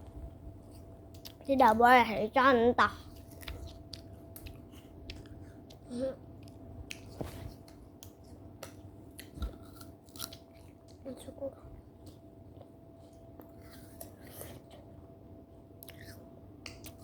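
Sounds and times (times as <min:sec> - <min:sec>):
person chewing crunchy fruit: 0:03.0 - 0:11.2, 0:15.8 - 0:17.0.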